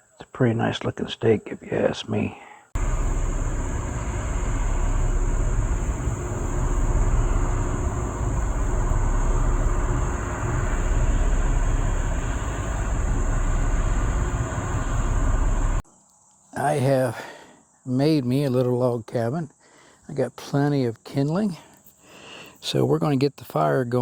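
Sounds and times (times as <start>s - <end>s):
wind buffeting microphone: 2.8s - 15.8s.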